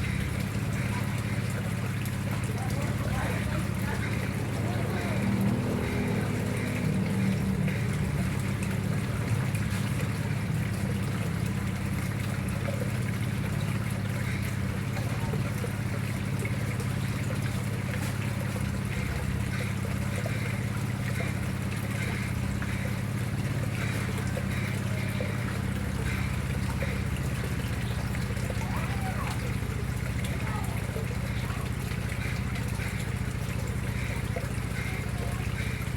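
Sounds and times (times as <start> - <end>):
water trickling into a pond: 0.0 - 35.9.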